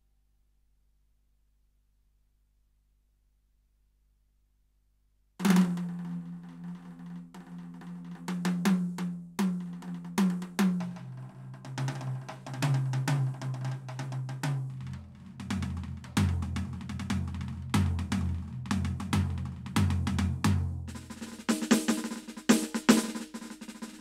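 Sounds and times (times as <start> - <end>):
electronic drum kit playing: 15.4 - 24.0.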